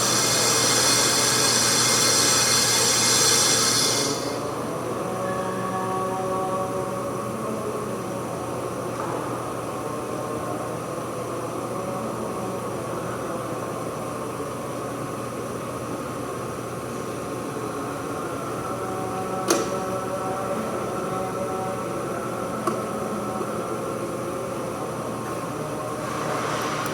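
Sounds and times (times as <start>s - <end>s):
machine humming: 0.0s - 6.5s.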